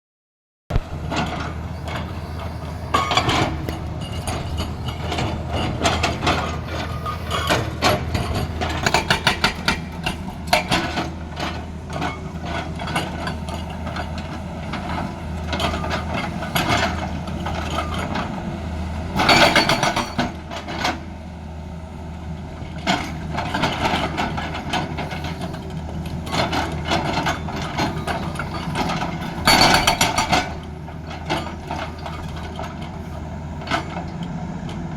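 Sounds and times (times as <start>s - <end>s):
hydraulic breaker hammering: 0.7s - 11.2s
excavator diesel engine running: 0.7s - 34.9s.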